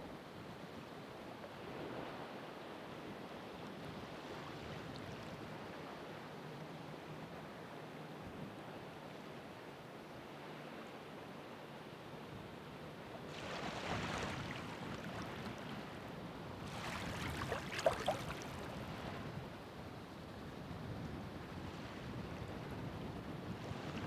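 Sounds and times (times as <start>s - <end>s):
low wash of the sea: 0.0s - 24.0s
ocean waves breaking: 13.3s - 19.2s
sharp water splashes: 16.8s - 18.7s.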